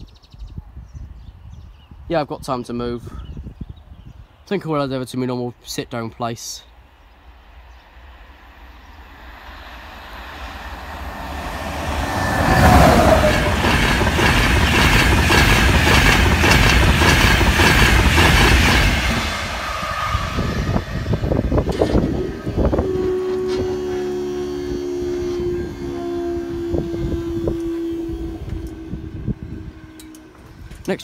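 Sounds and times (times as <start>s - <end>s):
train passing at speed: 6.8s - 31.0s
wheels clattering on track: 12.1s - 19.2s.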